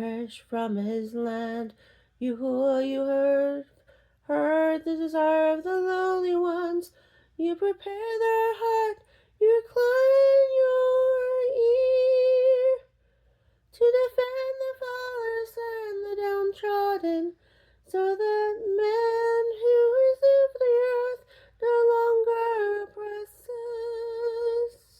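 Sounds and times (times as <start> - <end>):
woman singing unaccompanied: 0.0 - 12.9, 13.7 - 24.9.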